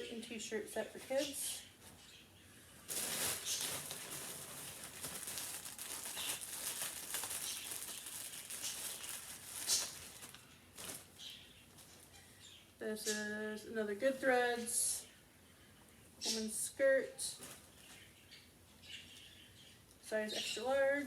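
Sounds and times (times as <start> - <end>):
clothing packaging crinkling: 2.9 - 12.1.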